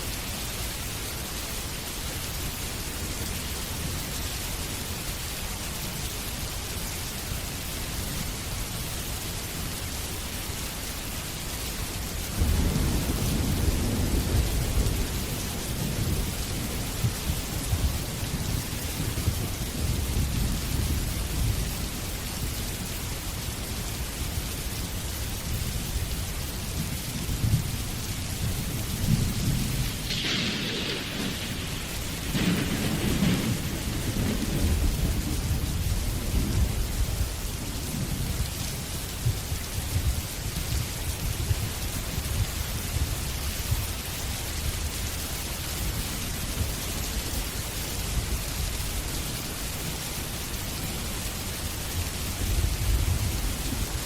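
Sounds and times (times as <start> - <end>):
steady rain: 0.0 - 54.0
rolling thunder rumble: 12.3 - 22.2, 26.9 - 43.8, 51.0 - 54.0.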